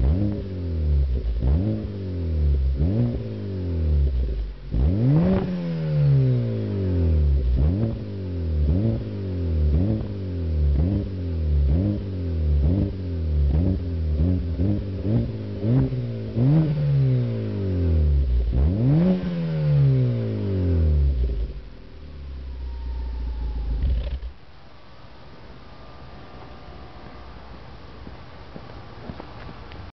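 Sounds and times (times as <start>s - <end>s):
car engine revving: 0.0s - 24.5s.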